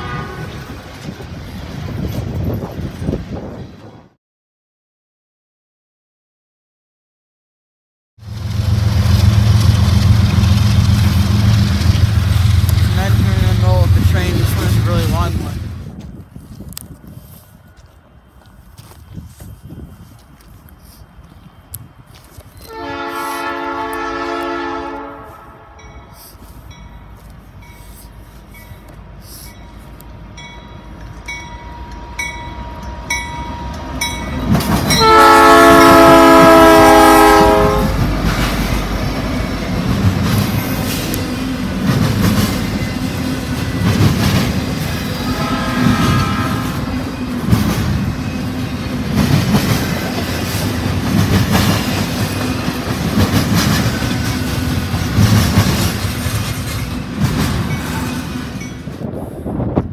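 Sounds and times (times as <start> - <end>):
locomotive horn blasts: 0.0 - 0.8, 22.6 - 25.9, 34.9 - 38.1, 45.2 - 46.9
approaching train rumble: 0.0 - 4.2, 8.2 - 59.9
wheels clacking over rail joints: 29.8 - 35.0, 37.9 - 45.1, 46.7 - 59.0.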